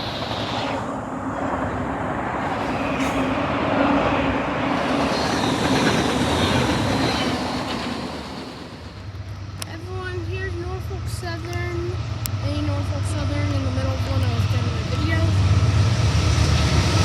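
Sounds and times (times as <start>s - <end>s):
train wheels on rails: 0.0s - 17.0s
low engine hum: 9.0s - 17.0s.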